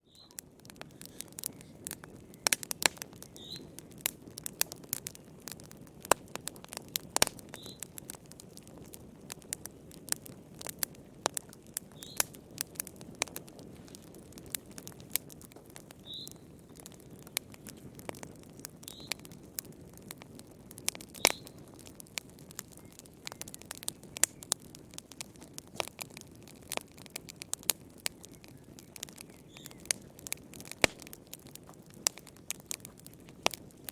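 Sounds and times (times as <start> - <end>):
wood fire crackling and popping: 0.0 - 33.9
louder snaps of fire: 0.1 - 19.8, 20.8 - 33.9
low rush of flame: 0.4 - 16.0.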